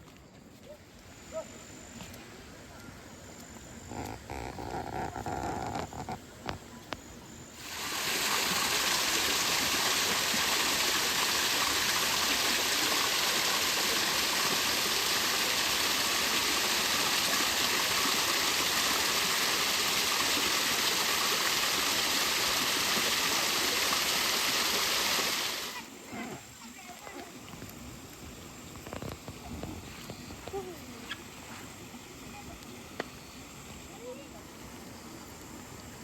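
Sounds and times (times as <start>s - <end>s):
rush of flowing water: 7.5s - 36.0s.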